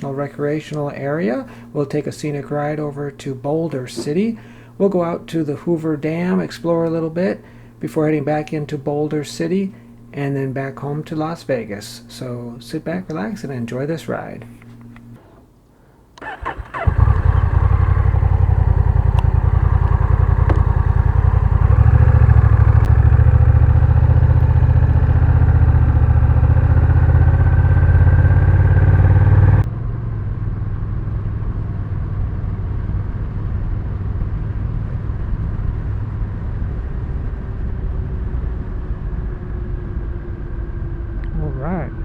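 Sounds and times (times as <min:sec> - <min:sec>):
motorcycle engine idling: 0:16.2 - 0:31.2.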